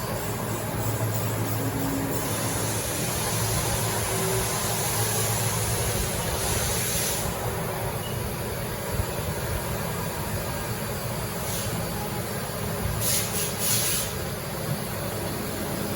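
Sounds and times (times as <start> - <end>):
high hiss: 0.4 - 7.8, 12.9 - 14.4.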